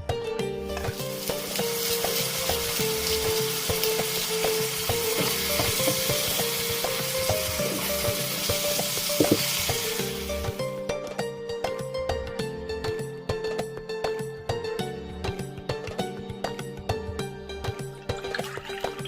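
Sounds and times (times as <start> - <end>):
background music with held notes: 0.0 - 19.0
food sizzling in hot oil: 0.6 - 10.8.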